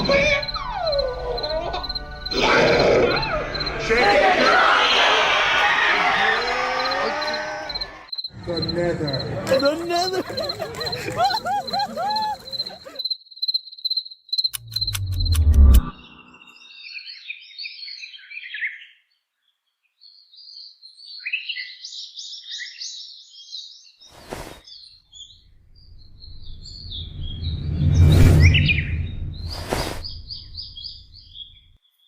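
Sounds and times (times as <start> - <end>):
birds chirping: 0.0 - 13.1, 15.9 - 31.8
sharp clicks: 14.5 - 16.0
low rumble: 25.7 - 31.2.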